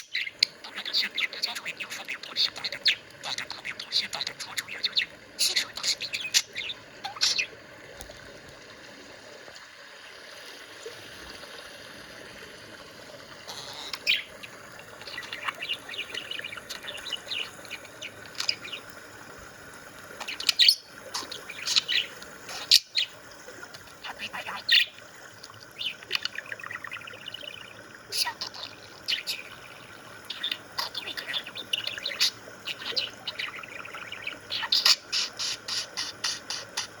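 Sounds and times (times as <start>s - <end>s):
budgie chirping and chattering: 0.0s - 7.5s, 15.0s - 18.9s, 20.2s - 23.1s, 25.7s - 29.6s, 30.3s - 37.0s.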